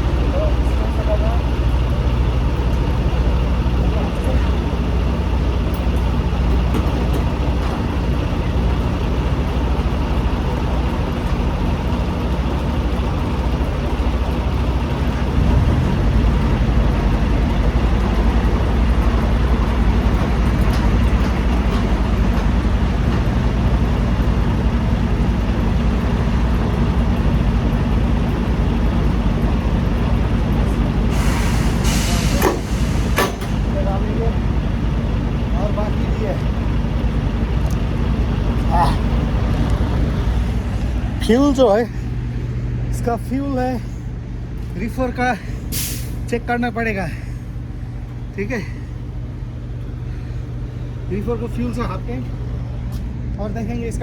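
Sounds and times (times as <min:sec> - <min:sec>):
heavy diesel engine running: 0:00.0 - 0:54.0
air hiss burst: 0:31.1 - 0:33.5.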